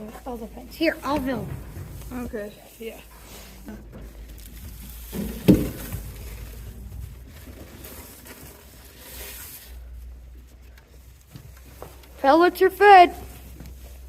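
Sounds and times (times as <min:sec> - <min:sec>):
thump: 0:01.0 - 0:02.6, 0:05.1 - 0:06.4.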